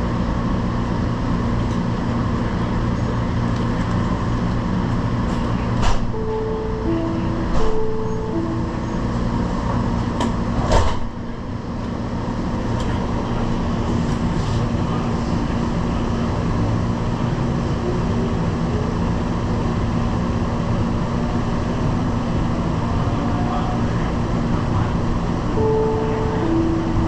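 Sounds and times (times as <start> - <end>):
train rumbling with hum: 0.0 - 27.0
sharp clunk: 5.8 - 6.1, 7.5 - 8.0, 10.2 - 11.2.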